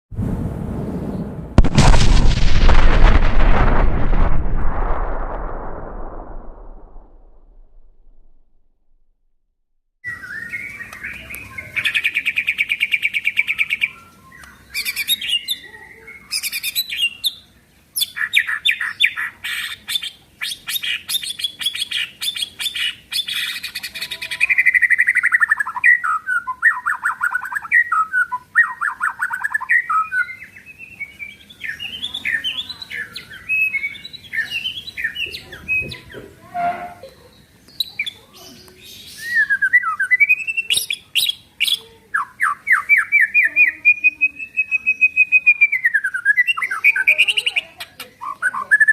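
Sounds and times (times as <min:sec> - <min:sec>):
songbird singing: 0:10.1 - 0:36.4, 0:37.1 - 0:48.9.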